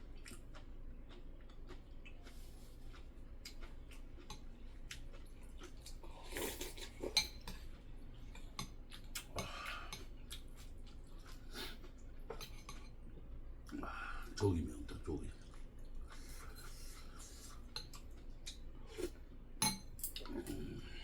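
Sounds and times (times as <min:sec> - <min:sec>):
utensils clinking against dishes: 0:19.6 - 0:20.2.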